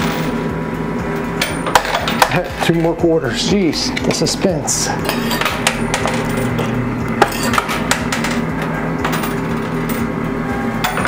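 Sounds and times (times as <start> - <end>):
arcade hum and electronic tones: 0.0 - 11.0
coins clinking in machine: 5.0 - 10.1, 10.8 - 11.0.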